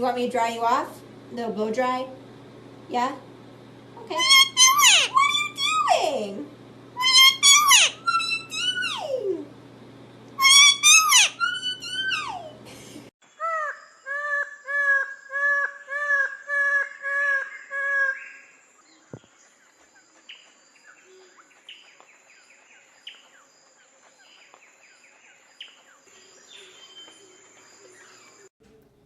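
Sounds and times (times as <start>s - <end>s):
bird calling arched notes: 4.0s - 6.2s, 7.0s - 9.5s, 10.4s - 12.6s, 13.2s - 23.5s, 24.2s - 28.5s.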